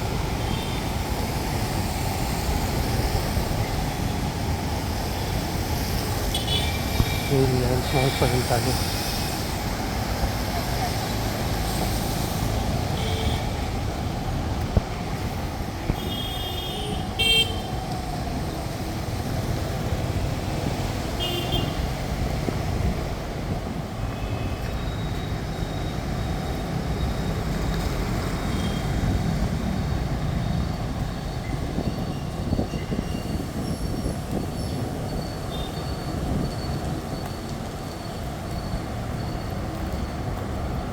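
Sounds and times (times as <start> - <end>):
road traffic rumble: 0.0 - 40.9
vehicle horn honks: 6.3 - 7.4, 16.0 - 17.7, 21.2 - 21.9.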